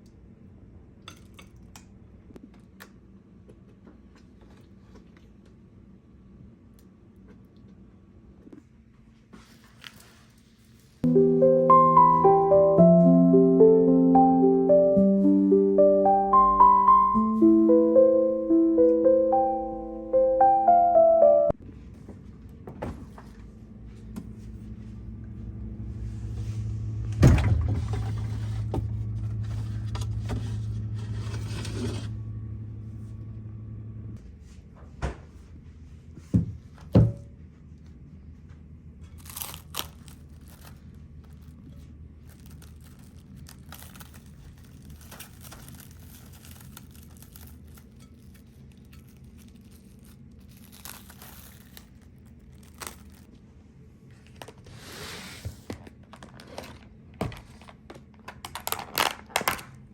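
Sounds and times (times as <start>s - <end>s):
steady low hum: 17.2s - 39.1s
handling and rustling: 39.1s - 53.3s.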